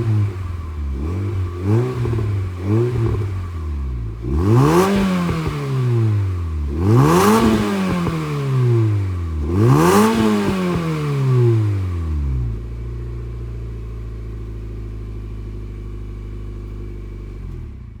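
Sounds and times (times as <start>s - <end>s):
car engine idling: 0.0s - 9.8s, 11.5s - 18.0s
car engine revving: 0.0s - 12.7s.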